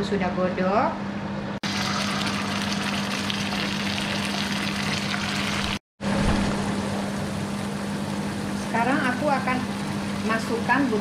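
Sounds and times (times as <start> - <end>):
spice paste sizzling in oil: 1.6 - 5.8.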